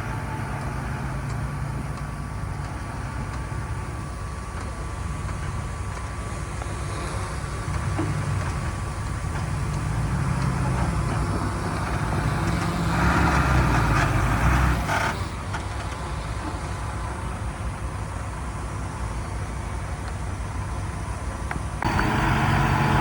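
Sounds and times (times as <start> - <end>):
heavy diesel engine rumbling: 0.0 - 23.0
rushing noise: 21.8 - 23.0.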